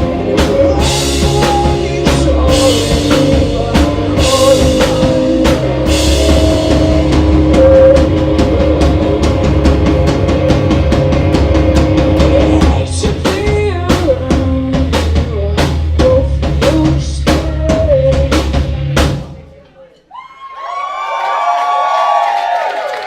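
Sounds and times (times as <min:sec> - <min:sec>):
person singing: 0:00.0 - 0:10.6, 0:12.1 - 0:18.8
rock band playing live: 0:00.0 - 0:19.5.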